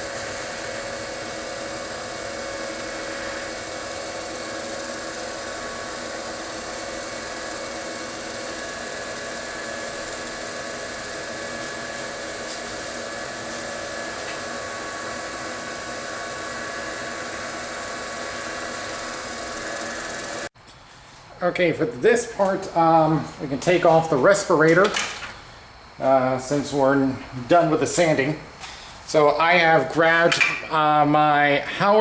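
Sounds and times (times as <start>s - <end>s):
rushing noise of sanding: 0.0s - 20.5s
wood lathe motor whine: 0.0s - 20.5s.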